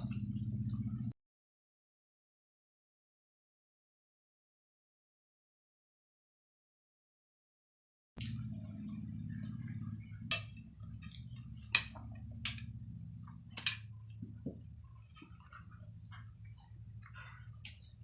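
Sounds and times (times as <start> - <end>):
faint high whine: 0.0 - 1.2, 8.2 - 18.0
steady low hum: 0.0 - 1.2, 8.2 - 18.0
eating clicks and smacks: 10.2 - 14.5.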